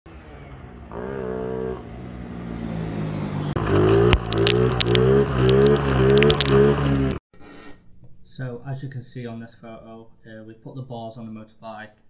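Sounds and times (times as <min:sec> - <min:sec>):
motorcycle engine revving: 0:00.1 - 0:07.2
sharp clicks: 0:04.0 - 0:06.8.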